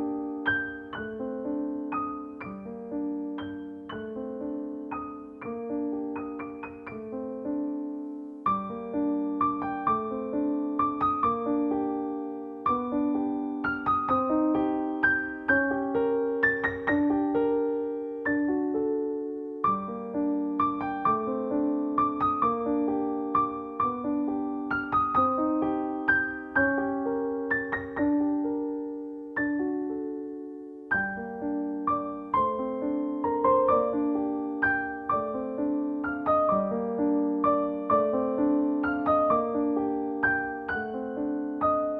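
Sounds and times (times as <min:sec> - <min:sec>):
solo piano music: 0:00.0 - 0:41.9.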